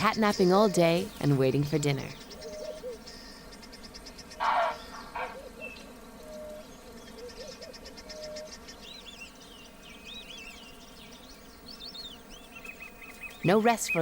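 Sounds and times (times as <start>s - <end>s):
high ticking bird trill: 0.0s - 14.0s
short low bird calls: 4.2s - 9.1s.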